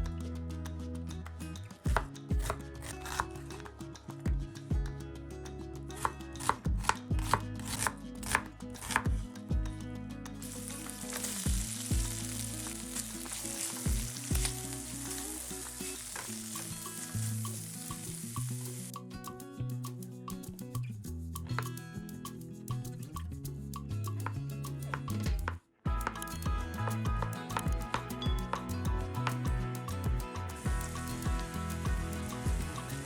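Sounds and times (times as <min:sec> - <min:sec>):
knife chopping on cutting board: 0:01.9 - 0:03.2, 0:06.4 - 0:09.1
food sizzling in a pan: 0:10.4 - 0:19.0, 0:30.5 - 0:33.0.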